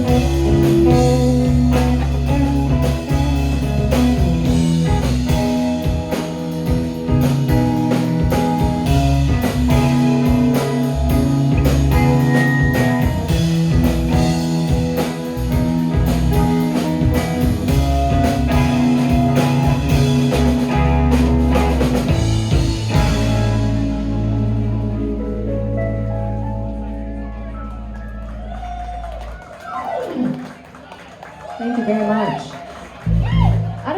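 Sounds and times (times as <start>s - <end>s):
drums hitting steadily: 0.0s - 24.5s
rock band playing: 0.0s - 30.0s.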